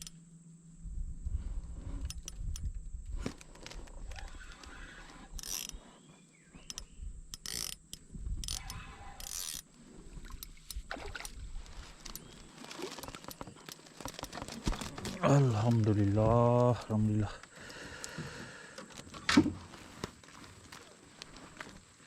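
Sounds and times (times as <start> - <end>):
fishing reel clicking and whirring: 2.0 - 2.8, 3.4 - 5.8, 6.7 - 9.7
handling clicks: 6.6 - 9.6.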